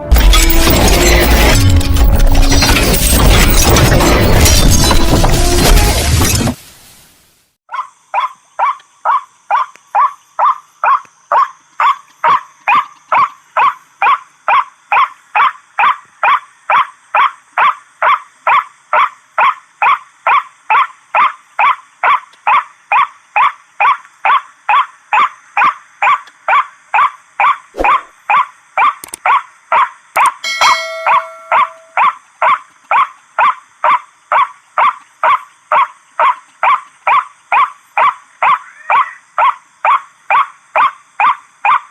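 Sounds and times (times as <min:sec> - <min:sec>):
steady tone: 0:30.5 - 0:32.0.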